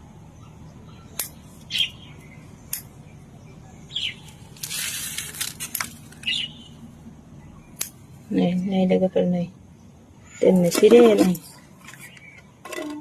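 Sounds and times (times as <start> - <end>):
leafy rustling: 4.2 - 6.5.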